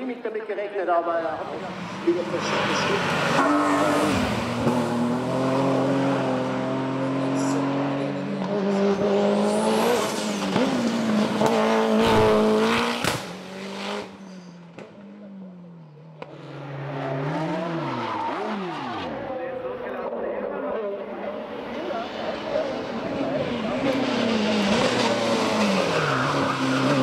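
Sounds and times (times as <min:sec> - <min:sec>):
race car engine at full throttle: 0:01.3 - 0:27.0.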